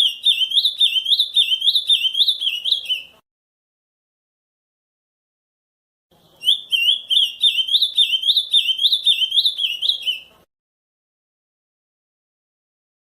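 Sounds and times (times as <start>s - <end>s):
bird singing whistled notes: 0.0s - 3.2s, 6.2s - 10.4s.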